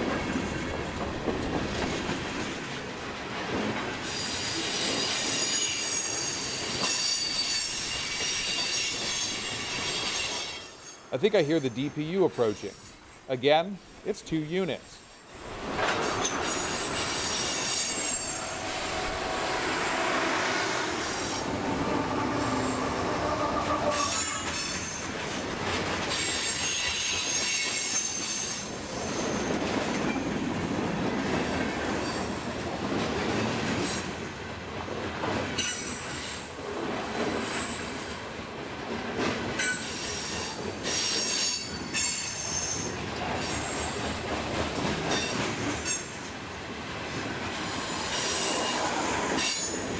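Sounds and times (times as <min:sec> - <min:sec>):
clickety-clack over rail joints: 0:00.0 - 0:13.2, 0:15.4 - 0:49.9
diesel locomotives approaching: 0:00.0 - 0:49.9
steel wheels squealing: 0:04.0 - 0:13.0, 0:15.9 - 0:25.4, 0:26.1 - 0:29.6, 0:39.6 - 0:44.2, 0:47.6 - 0:49.9.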